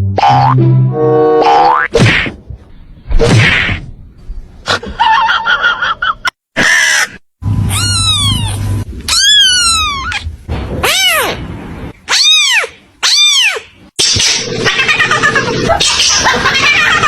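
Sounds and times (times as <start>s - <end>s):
cats meowing: 7.7s - 11.4s, 12.1s - 13.7s.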